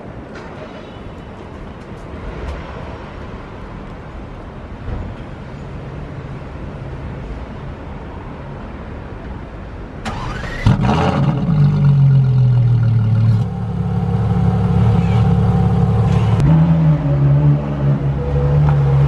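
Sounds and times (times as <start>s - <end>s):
car engine starting and idling: 10.0s - 16.8s
starter whirr: 10.1s - 11.7s.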